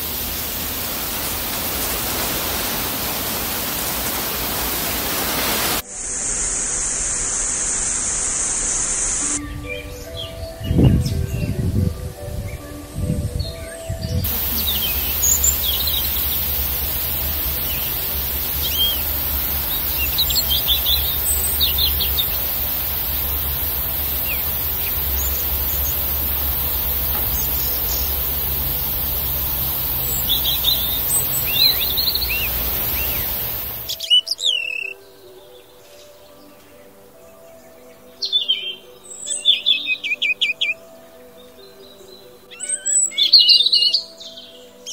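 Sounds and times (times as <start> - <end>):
songbirds chirping: 0.0 - 5.8, 8.3 - 44.9
high hiss: 0.0 - 10.5, 14.2 - 34.1.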